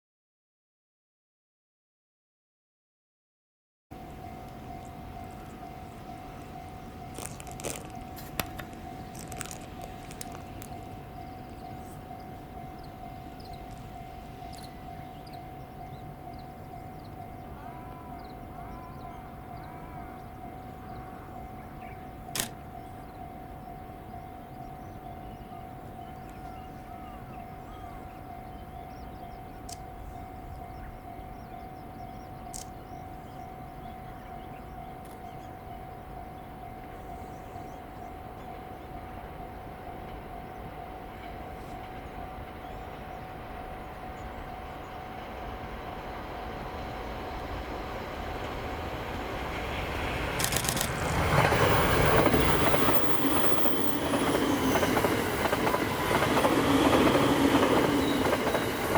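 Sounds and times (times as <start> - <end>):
train approaching: 3.9 - 58.9
steady high-pitched tone: 4.0 - 50.6
sharp click: 22.4 - 22.6, 50.4 - 51.0.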